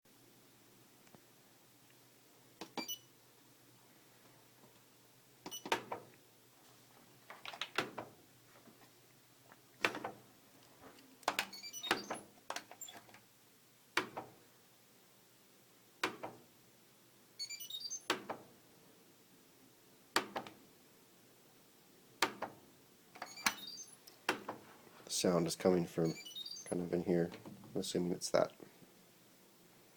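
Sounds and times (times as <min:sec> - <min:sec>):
high beeps: 0:11.5 - 0:12.2, 0:17.4 - 0:18.1, 0:23.2 - 0:24.0, 0:26.0 - 0:26.9
washing machine clicks and knocks: 0:14.0 - 0:14.4.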